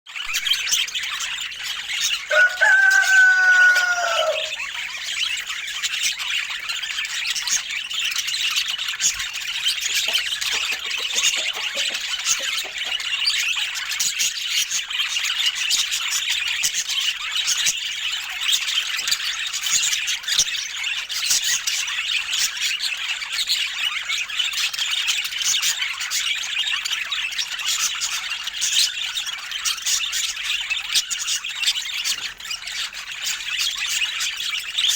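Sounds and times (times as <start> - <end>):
budgerigars chattering: 0.2 - 34.9
drawn-out bird call: 2.3 - 4.7.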